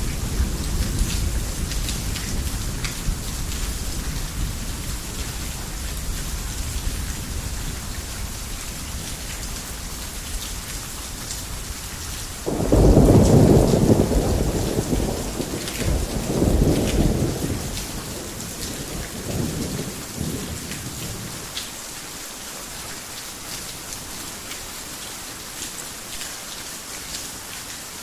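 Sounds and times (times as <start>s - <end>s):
low rumble of thunder: 0.0s - 10.4s, 12.5s - 21.5s
heavy rain on a roof: 0.0s - 28.0s.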